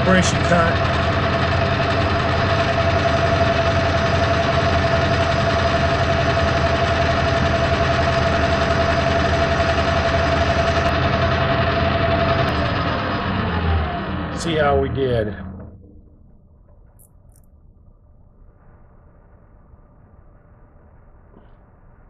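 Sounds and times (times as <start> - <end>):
metal lathe motor and gear drone: 0.0 - 15.9
constant high whine: 0.0 - 22.0.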